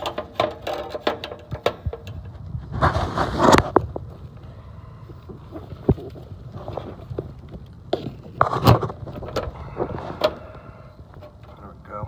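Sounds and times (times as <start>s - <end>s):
tools and parts clicking and knocking: 0.0s - 2.3s
low steady rumble: 0.0s - 12.0s.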